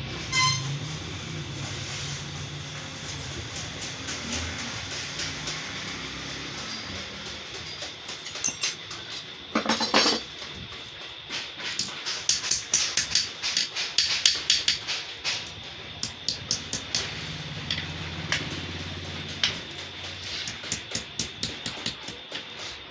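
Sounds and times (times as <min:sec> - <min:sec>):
steady low hum: 0:00.0 - 0:22.9
hammer striking sheet metal: 0:11.4 - 0:22.2.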